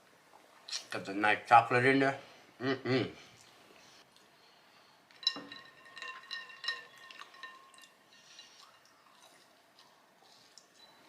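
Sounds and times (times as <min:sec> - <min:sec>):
ice cubes clinking in glass: 0:05.2 - 0:08.0.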